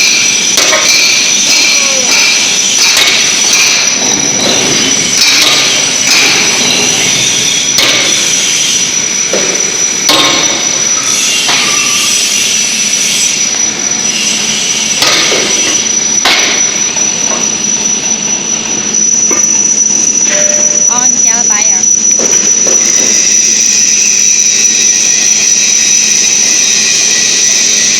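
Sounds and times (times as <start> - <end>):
loud metallic knocks and clanks: 0.0 - 17.6
machinery high-pitched whine: 0.0 - 27.9.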